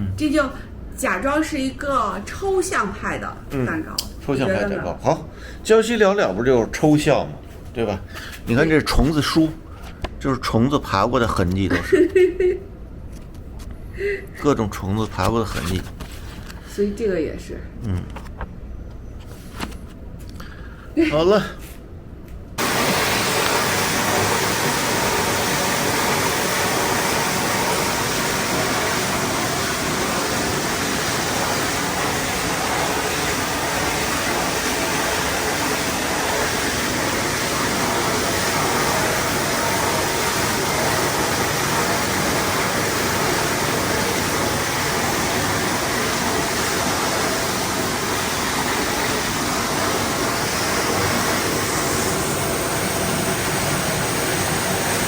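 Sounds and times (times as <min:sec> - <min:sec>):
water pouring into a bath: 0:22.6 - 0:55.0.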